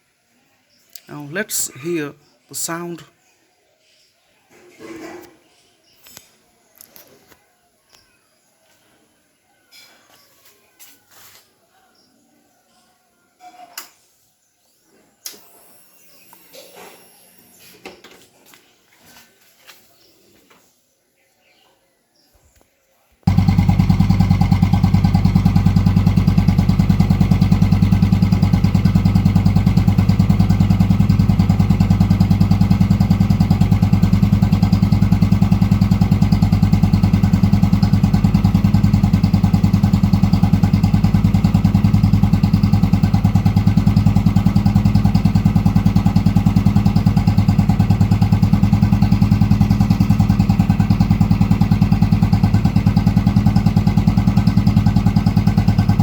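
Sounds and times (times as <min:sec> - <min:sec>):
motorcycle engine idling: 0:23.3 - 0:56.0.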